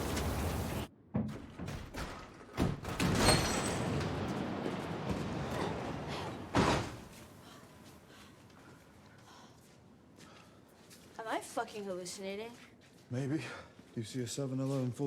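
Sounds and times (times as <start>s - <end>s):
snowstorm wind: 0.0s - 0.9s, 3.5s - 8.5s
door slamming: 1.2s - 4.3s, 6.4s - 7.1s.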